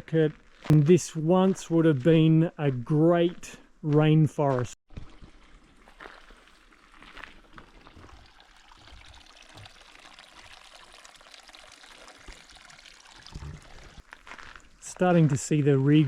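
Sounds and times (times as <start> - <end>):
steady hiss like trickling water: 5.2 - 16.0.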